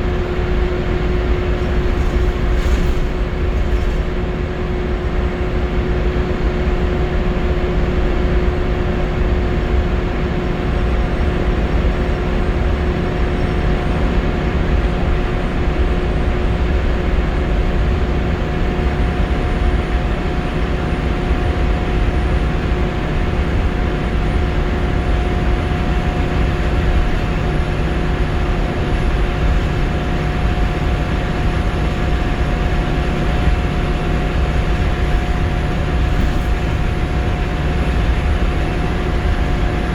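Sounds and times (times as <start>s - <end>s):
road rumble: 0.0s - 5.1s
constant whine: 0.0s - 6.5s, 8.8s - 39.9s
bus diesel engine: 0.0s - 39.9s.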